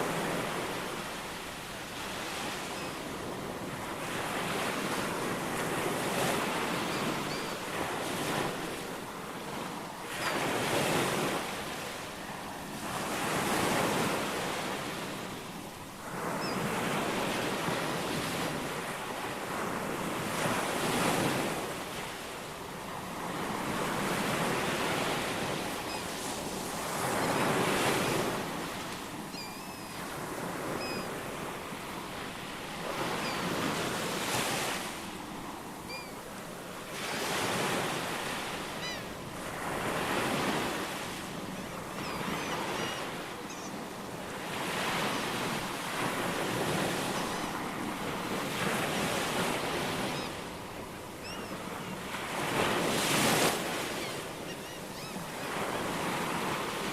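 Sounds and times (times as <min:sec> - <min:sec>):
faint bird chirps: 0:29.3 - 0:30.0, 0:30.8 - 0:31.2, 0:35.9 - 0:36.2, 0:41.6 - 0:43.8, 0:51.2 - 0:51.9, 0:53.9 - 0:55.3.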